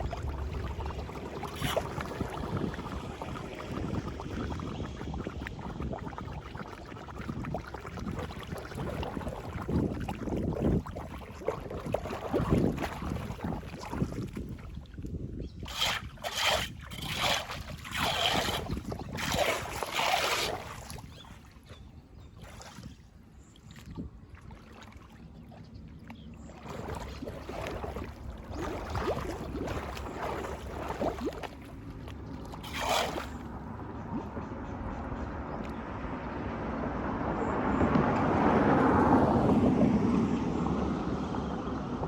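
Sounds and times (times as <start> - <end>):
floodwater splashing through drain: 0.0 - 14.9, 15.6 - 21.5, 26.5 - 33.5
wind rumble on microphone: 0.0 - 42.0.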